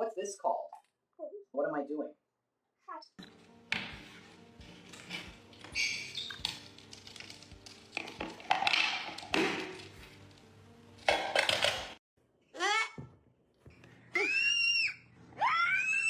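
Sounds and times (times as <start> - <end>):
hard objects clattering: 3.2 - 10.4, 11.0 - 12.0.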